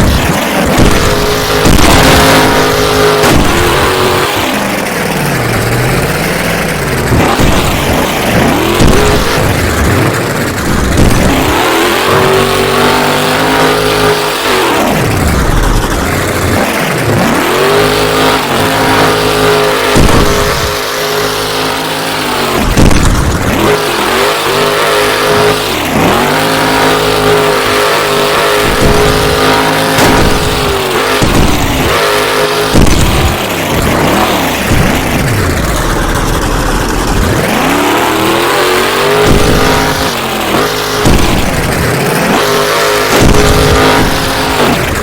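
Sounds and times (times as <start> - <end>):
truck engine revving: 0.0 - 45.0.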